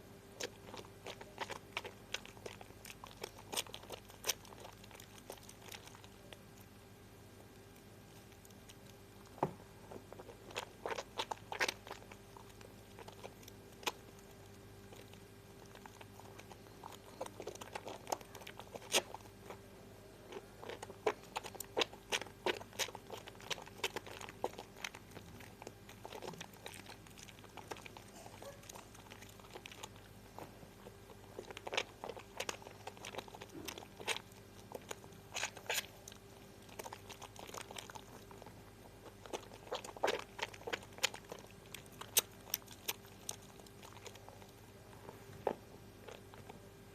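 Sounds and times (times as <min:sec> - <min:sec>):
wet crackling of soap lather: 0:10.0 - 0:44.8.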